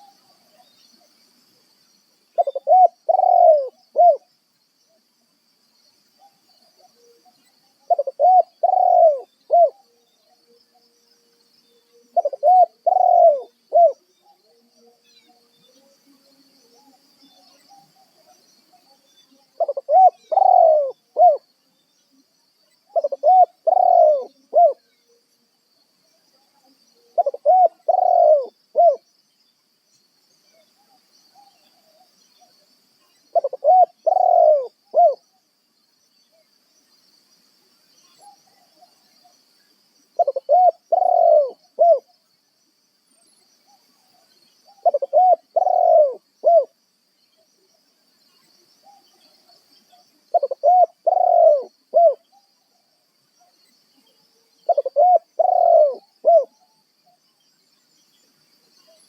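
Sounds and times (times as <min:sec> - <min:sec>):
dove cooing: 0:02.4 - 0:04.2, 0:07.9 - 0:09.8, 0:12.2 - 0:14.0, 0:19.6 - 0:21.4, 0:22.9 - 0:24.8, 0:27.2 - 0:29.0, 0:33.3 - 0:35.2, 0:40.2 - 0:42.1, 0:44.7 - 0:46.7, 0:50.3 - 0:52.3, 0:54.7 - 0:56.6.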